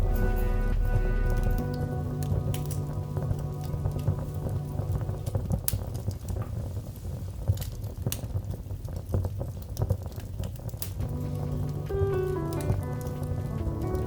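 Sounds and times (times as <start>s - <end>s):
soft music: 0.0s - 6.8s, 11.0s - 14.0s
low rumble: 0.0s - 7.0s, 11.0s - 14.0s
wood fire crackling and popping: 0.0s - 14.0s.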